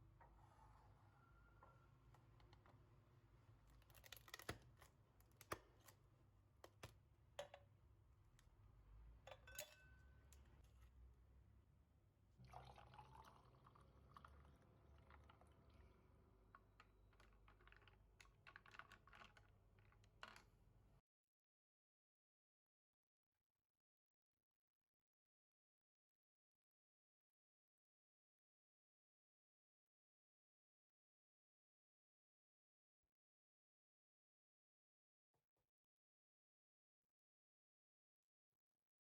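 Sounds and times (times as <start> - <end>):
utensils and dishes clattering: 9.3 - 10.1.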